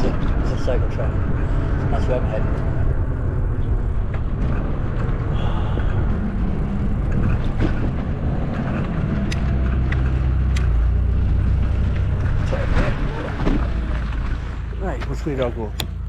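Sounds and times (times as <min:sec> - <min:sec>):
wind buffeting microphone: 0:00.0 - 0:15.6.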